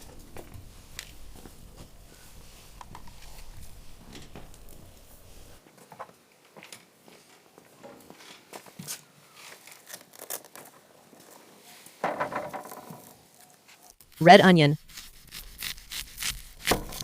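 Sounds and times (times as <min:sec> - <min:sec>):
vegetables being handled and cut: 0:13.0 - 0:17.0.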